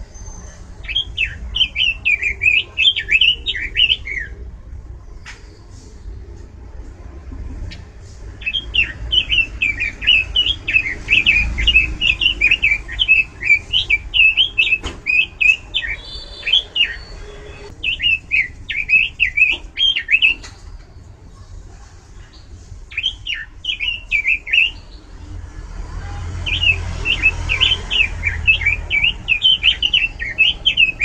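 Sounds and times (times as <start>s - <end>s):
bird singing warbled notes: 0.1s - 4.4s, 8.4s - 20.6s, 26.5s - 31.0s.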